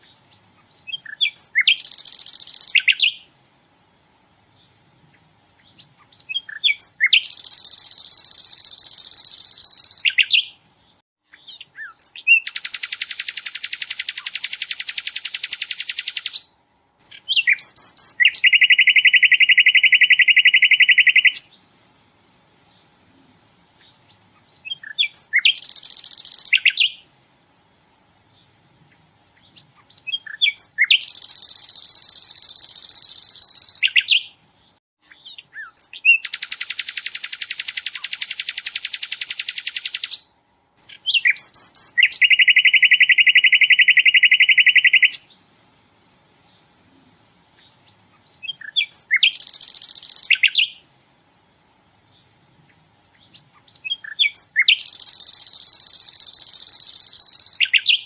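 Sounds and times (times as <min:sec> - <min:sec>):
bird chips and buzzing trill: 0:00.8 - 0:03.2, 0:05.8 - 0:10.5, 0:11.5 - 0:21.5, 0:24.5 - 0:27.0, 0:29.8 - 0:34.3, 0:35.3 - 0:40.2, 0:48.3 - 0:50.8, 0:53.3 - 0:58.0.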